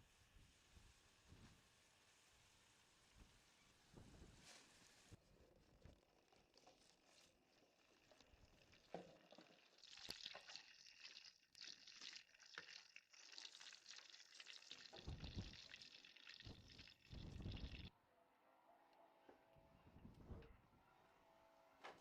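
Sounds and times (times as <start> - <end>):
hot oil sizzling and crackling: 0.0 - 5.2, 6.2 - 17.9.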